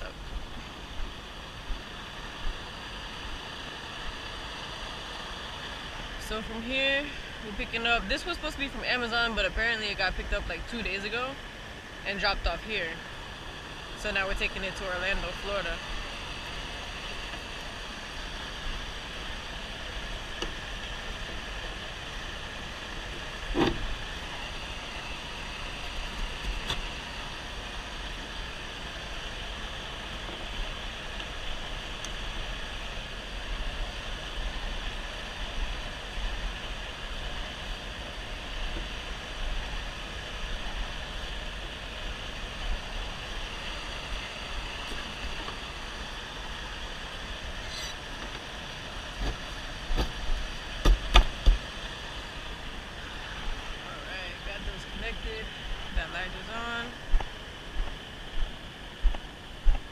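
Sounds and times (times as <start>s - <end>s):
truck rumble and road noise: 0.0s - 58.6s.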